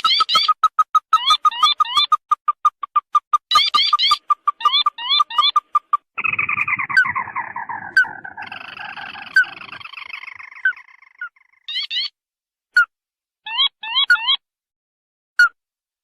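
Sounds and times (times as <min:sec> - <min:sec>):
bird calling with trills: 0:00.0 - 0:12.2.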